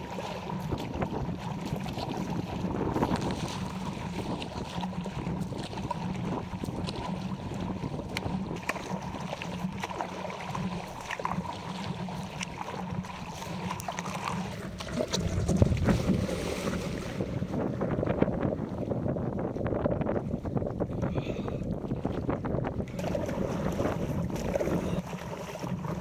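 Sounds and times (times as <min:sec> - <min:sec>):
water splashing and slapping: 0:00.0 - 0:26.0
wind buffeting microphone: 0:00.0 - 0:26.0.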